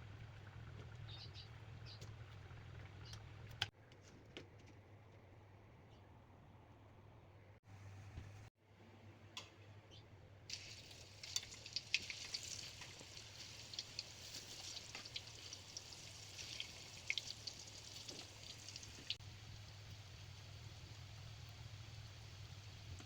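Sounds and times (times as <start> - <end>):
food sizzling in hot oil: 10.5 - 23.0.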